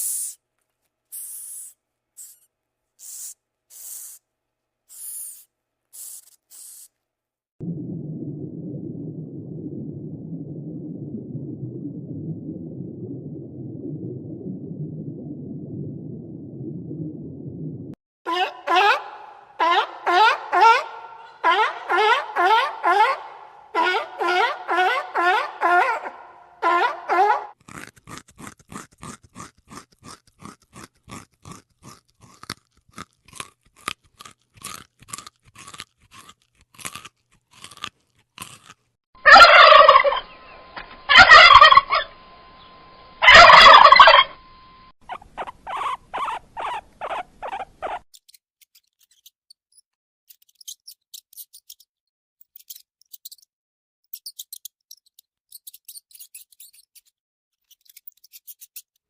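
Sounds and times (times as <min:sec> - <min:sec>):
loud harsh animal calls: 0:41.1 - 0:42.2, 0:43.2 - 0:44.4.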